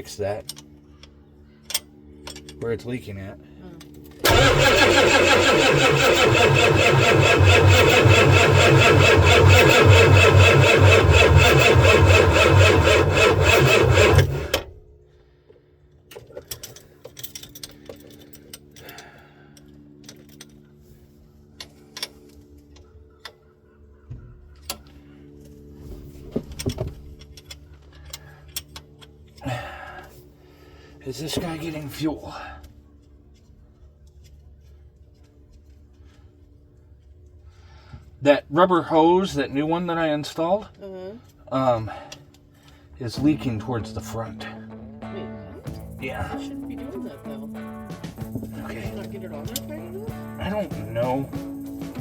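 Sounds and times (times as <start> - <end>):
engine starter cranking: 4.2 - 14.8, 45.7 - 52.0
low steady hum: 40.7 - 52.0.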